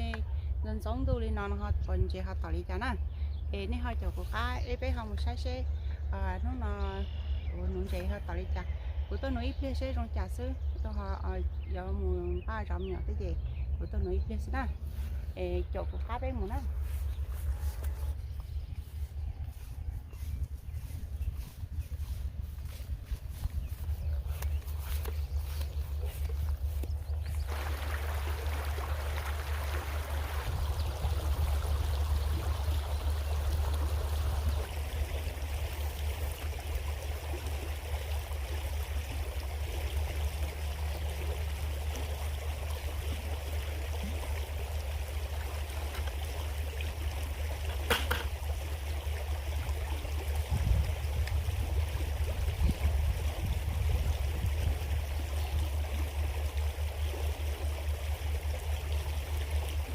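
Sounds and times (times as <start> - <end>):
low rumble: 0.0 - 47.7
creek water running: 0.0 - 59.9.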